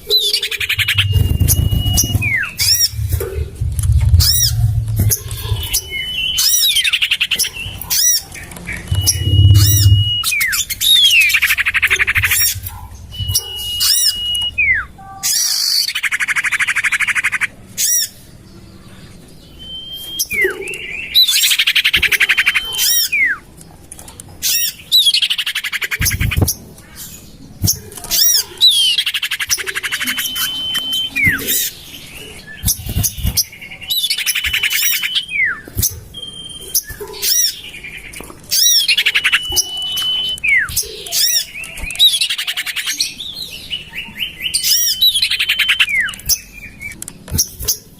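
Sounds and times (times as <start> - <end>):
bird calls whistles and trills: 0.0 - 18.2, 19.4 - 23.5, 24.4 - 47.9
low rumble: 0.8 - 6.9, 8.5 - 15.0.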